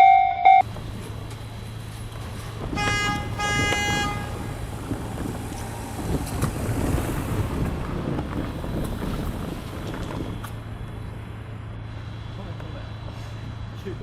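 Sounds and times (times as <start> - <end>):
wind buffeting microphone: 2.4 - 11.3.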